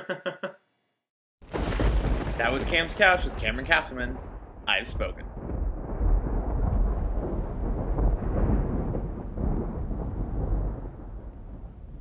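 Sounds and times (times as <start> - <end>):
thunder rumbling: 1.4 - 12.0.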